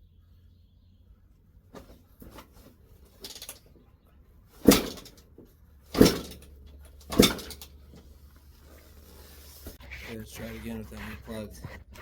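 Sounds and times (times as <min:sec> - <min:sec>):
dirt bike kick-starter thumps: 0:01.7 - 0:03.6, 0:04.6 - 0:08.2.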